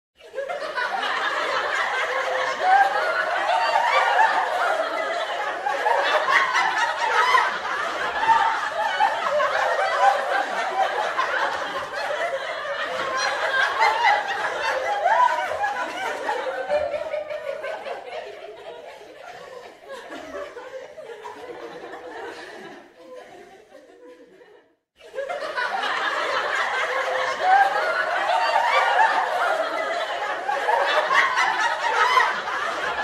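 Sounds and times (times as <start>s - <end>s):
people laughing and giggling: 0.2s - 33.0s
overlapping voices: 0.3s - 24.0s, 25.2s - 33.0s.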